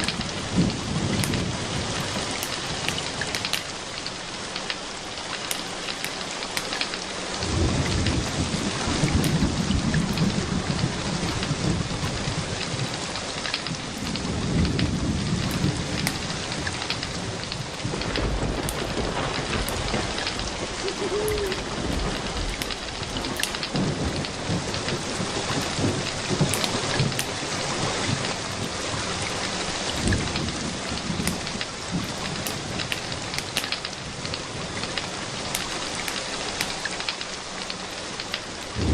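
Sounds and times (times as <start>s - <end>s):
rolling thunder rumbles: 0.0s - 4.5s, 7.3s - 36.7s, 38.7s - 38.9s
steady rain falling: 0.0s - 38.9s.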